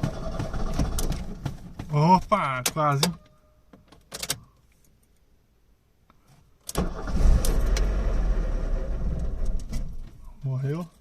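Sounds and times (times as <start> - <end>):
car engine starting: 0.0 - 1.8, 6.7 - 10.4.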